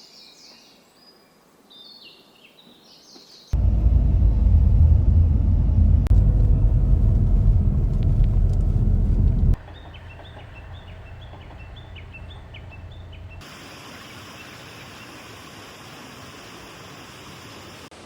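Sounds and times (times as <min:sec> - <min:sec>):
loud low rumble: 0:03.6 - 0:13.4
rushing outdoor noise: 0:03.6 - 0:18.0.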